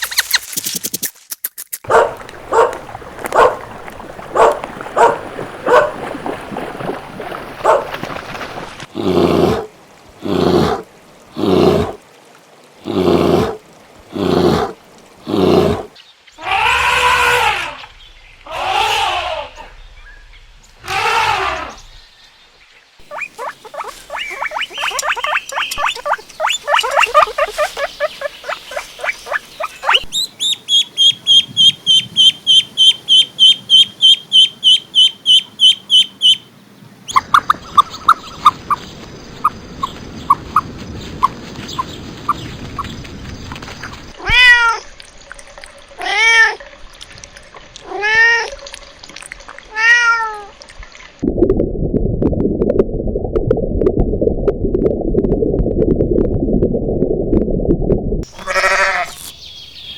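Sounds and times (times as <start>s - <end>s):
farm animal calls: 23.0s - 36.4s, 58.2s - 59.9s.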